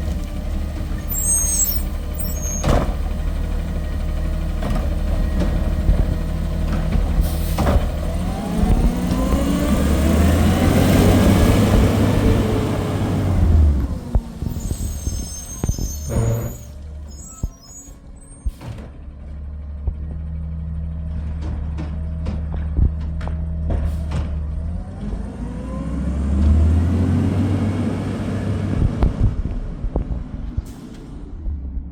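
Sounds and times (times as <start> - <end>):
diesel engine running: 0.0 - 31.9
high-pitched brake squeals: 0.9 - 2.8, 14.4 - 18.6.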